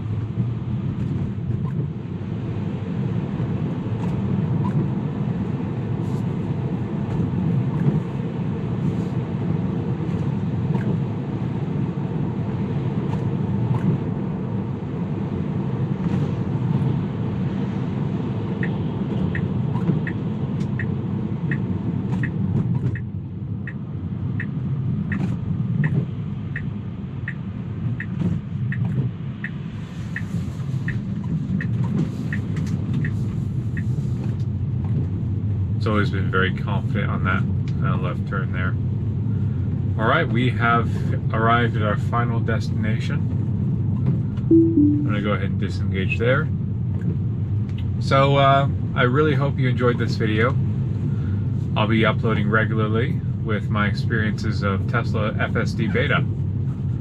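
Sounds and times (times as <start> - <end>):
road and tyre rumble: 0.0 - 44.5, 45.2 - 57.0
turn signal ticking: 18.6 - 34.4.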